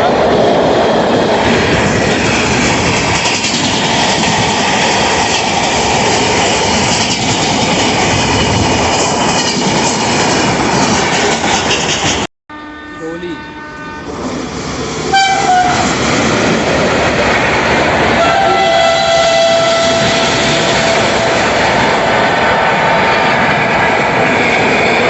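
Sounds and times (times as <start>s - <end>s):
train wheels clattering on rails: 0.3s - 12.3s, 14.8s - 25.0s.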